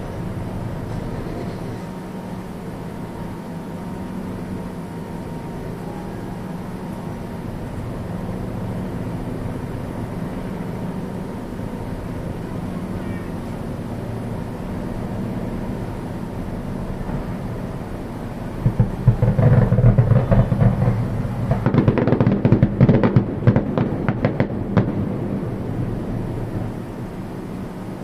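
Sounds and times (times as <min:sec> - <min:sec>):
low rumble: 0:16.4 - 0:27.7
fireworks bangs and crackles: 0:18.5 - 0:25.6.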